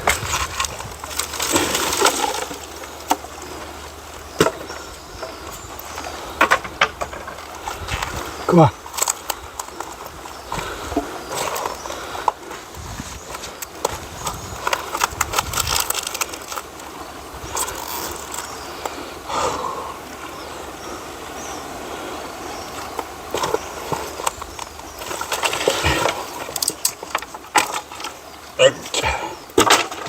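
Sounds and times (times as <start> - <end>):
rustling: 0.0 - 19.2.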